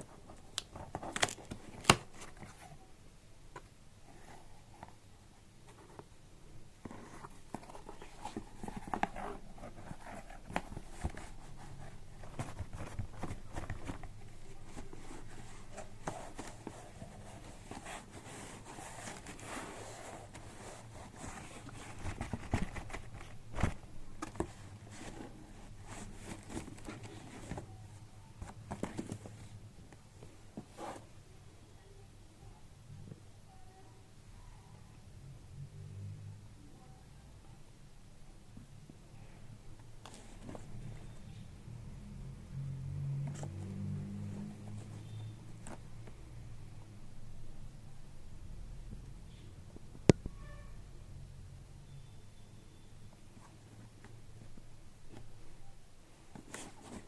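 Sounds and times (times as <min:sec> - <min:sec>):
packaging rustling and scraping: 0:00.2 - 0:02.8, 0:06.8 - 0:27.8, 0:56.4 - 0:57.0.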